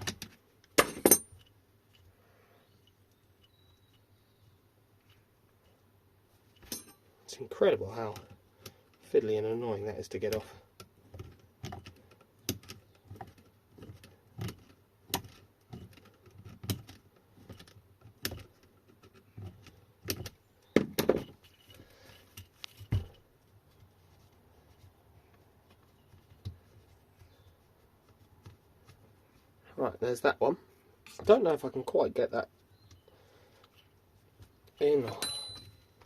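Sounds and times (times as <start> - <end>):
hand tools clinking and tapping: 0.0 - 2.1, 6.5 - 7.1, 34.7 - 36.0.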